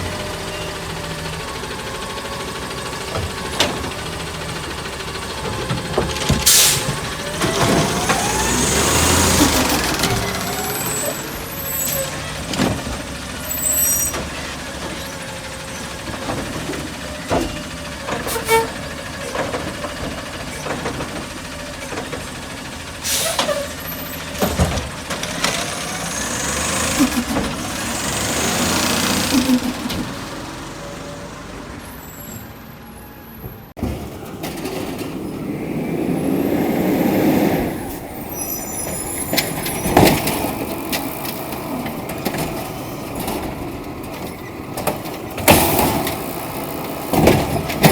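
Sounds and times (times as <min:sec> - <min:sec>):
diesel engine revving: 0:00.0 - 0:47.9
air brake hisses: 0:06.5 - 0:07.0, 0:23.0 - 0:23.8.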